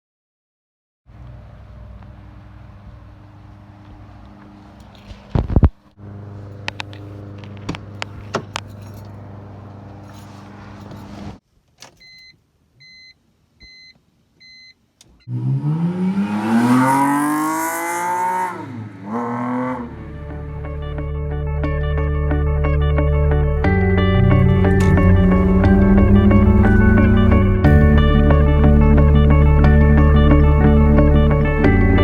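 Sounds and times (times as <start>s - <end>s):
car engine idling: 1.1s - 5.1s, 18.8s - 21.8s, 23.0s - 32.0s
engine revving: 15.3s - 32.0s.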